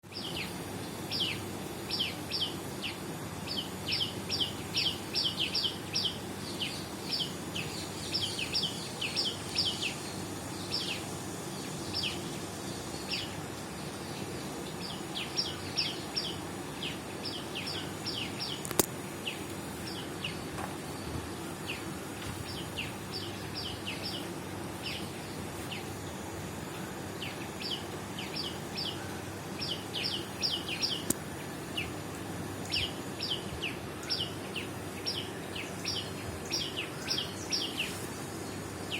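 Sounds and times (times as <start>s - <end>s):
small birds chirping: 0.0s - 38.9s
low background hum: 0.1s - 38.9s
sharp click: 18.6s - 18.9s.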